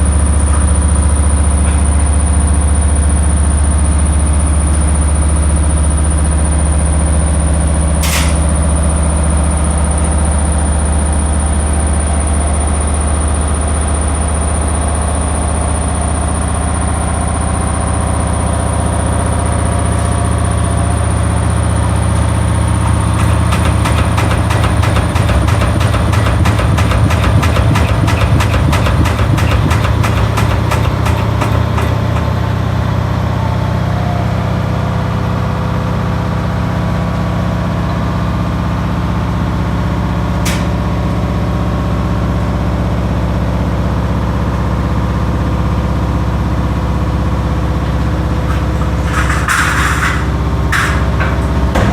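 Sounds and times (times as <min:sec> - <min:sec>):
washing machine running: 0:00.0 - 0:51.9
sharp click: 0:08.0 - 0:08.5
fast rattling clatter: 0:22.8 - 0:32.8, 0:48.4 - 0:51.9.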